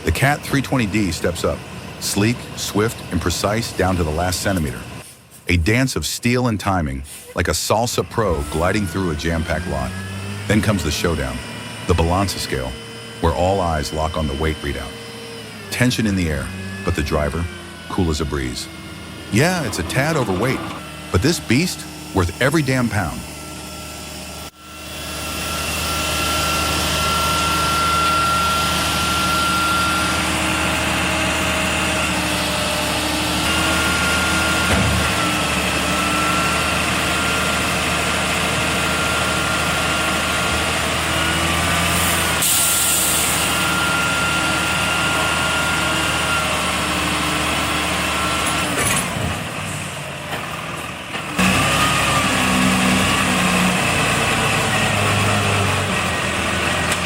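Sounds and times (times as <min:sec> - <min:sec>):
diesel truck engine running: 0:00.0 - 0:05.8, 0:07.0 - 0:57.0
air brake hiss: 0:05.0 - 0:05.5, 0:07.0 - 0:07.4, 0:42.0 - 0:43.5.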